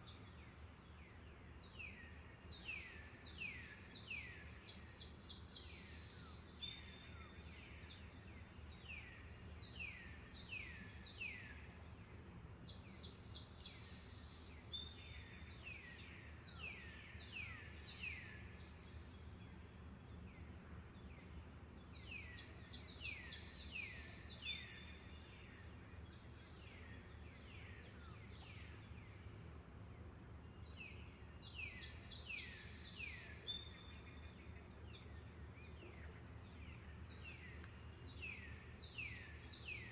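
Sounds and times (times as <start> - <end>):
songbird singing: 30.6 - 39.9.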